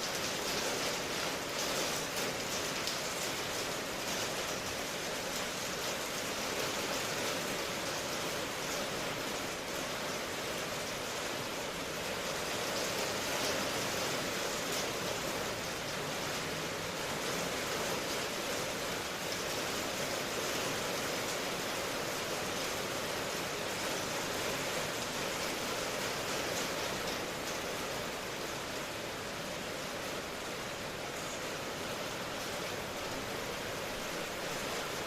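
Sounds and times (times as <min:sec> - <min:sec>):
steady rainfall: 0:00.0 - 0:35.0.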